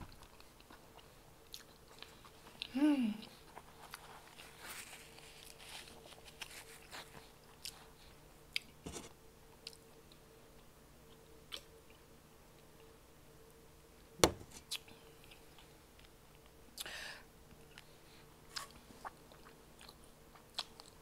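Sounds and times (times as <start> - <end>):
faint steady hum: 0.0 - 21.0
chewing food: 0.1 - 8.7, 18.5 - 21.0.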